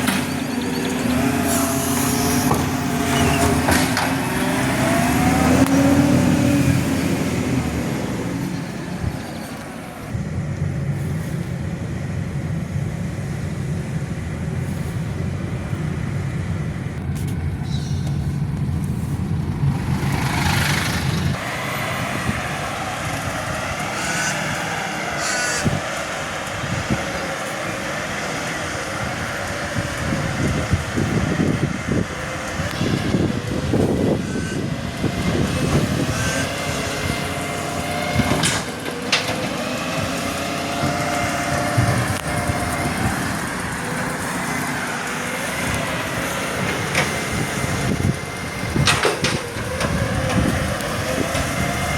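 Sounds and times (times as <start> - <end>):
garbage truck engine running: 0.0 - 51.9.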